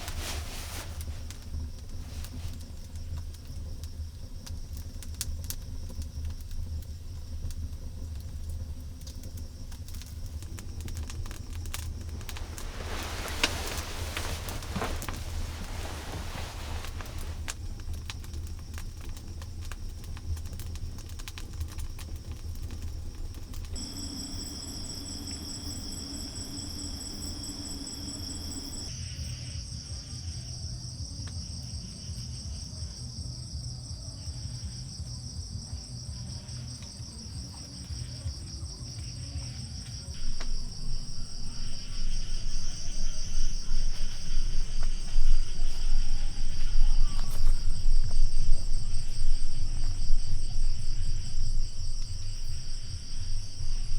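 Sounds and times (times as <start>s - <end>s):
crickets trilling: 0.0s - 53.9s
low rumble: 10.0s - 28.9s, 40.2s - 53.9s.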